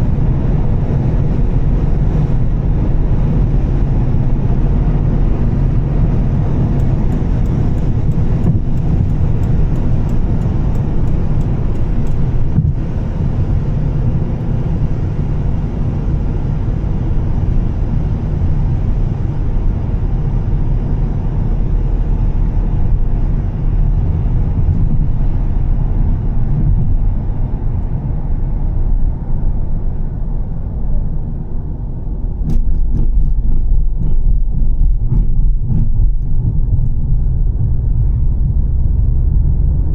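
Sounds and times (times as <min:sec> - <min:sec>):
car engine and road drone: 0:00.0 - 0:39.9
faint regular ticking: 0:06.7 - 0:12.8.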